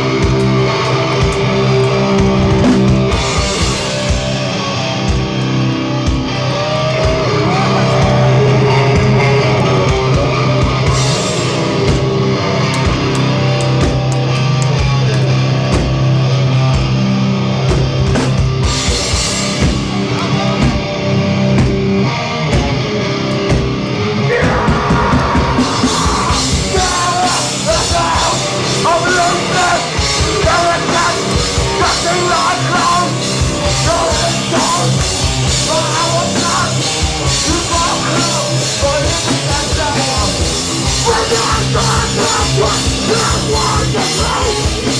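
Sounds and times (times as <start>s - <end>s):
bass and drums: 0.0s - 44.9s
distorted guitars: 0.0s - 44.9s
shouted vocals: 6.4s - 10.6s, 24.1s - 44.9s.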